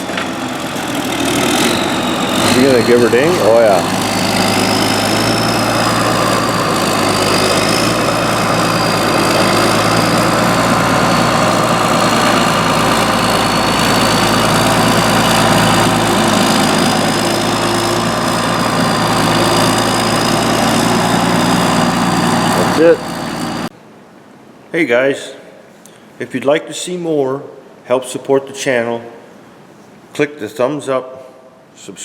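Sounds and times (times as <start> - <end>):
diesel engine idling: 0.0 - 23.7.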